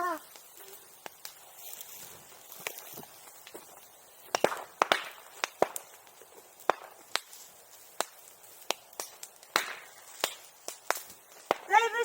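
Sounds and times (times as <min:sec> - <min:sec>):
bonfire crackling and popping: 0:00.0 - 0:12.0.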